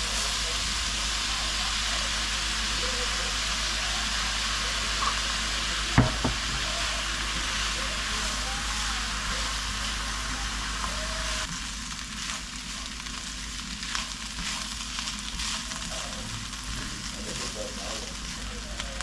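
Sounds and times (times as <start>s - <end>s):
food sizzling in a pan: 0.0s - 19.0s
crackles and pops: 10.8s - 19.0s.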